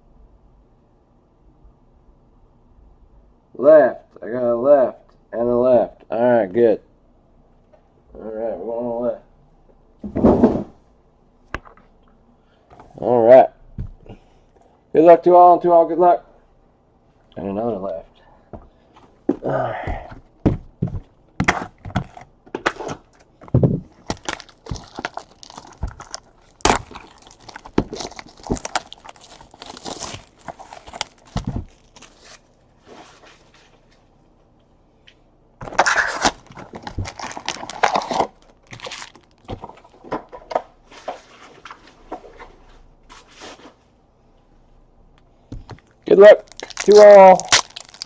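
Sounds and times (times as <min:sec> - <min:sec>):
cardboard taps and knocks: 0:20.4 - 0:22.2
plastic wrap tearing and crinkling: 0:22.7 - 0:32.5, 0:35.6 - 0:39.9, 0:45.8 - 0:48.0.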